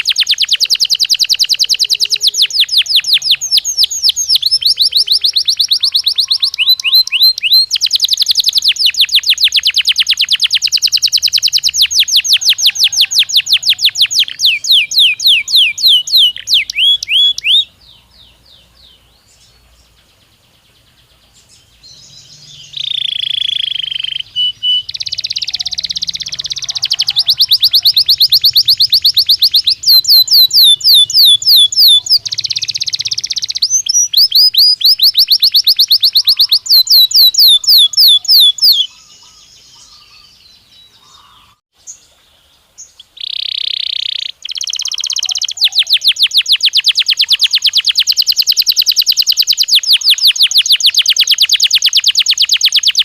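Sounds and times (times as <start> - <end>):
canary singing in rapid trills: 0.0 - 41.6, 43.0 - 53.0.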